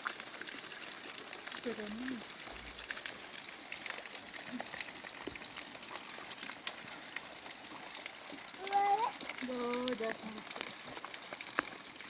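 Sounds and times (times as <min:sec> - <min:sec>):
raindrop ticks: 0:00.0 - 0:12.0
rain hissing: 0:01.6 - 0:07.4, 0:08.5 - 0:10.9.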